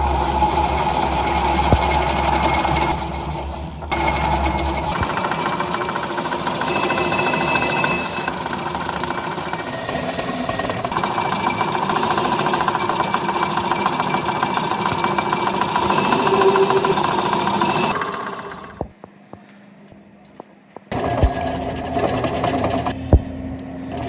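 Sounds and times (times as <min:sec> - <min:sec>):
rapid mechanical rattling: 0:00.0 - 0:18.9.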